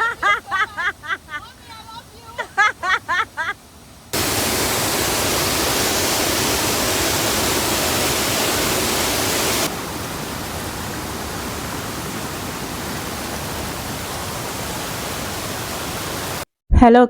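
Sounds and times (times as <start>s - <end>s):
waterfall rushing: 4.1s - 16.4s.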